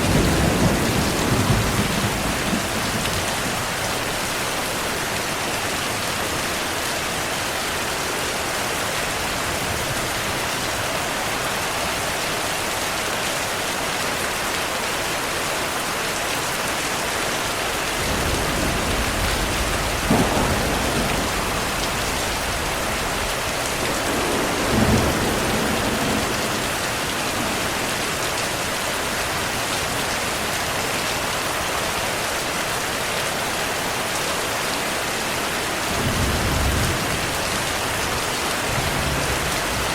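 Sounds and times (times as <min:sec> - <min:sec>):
loud thunder claps: 0:00.0 - 0:03.7, 0:18.0 - 0:27.8
thunder rumbling: 0:00.0 - 0:04.3, 0:17.9 - 0:28.0, 0:38.6 - 0:39.9
heavy rain falling: 0:00.0 - 0:39.9.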